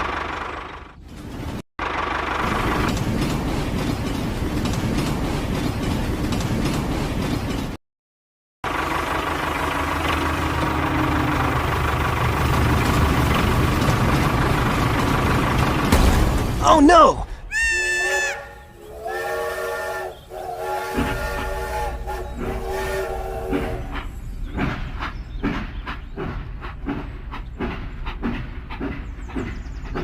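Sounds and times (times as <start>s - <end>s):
engine knocking: 0.0s - 1.0s, 1.8s - 5.4s, 8.6s - 16.0s.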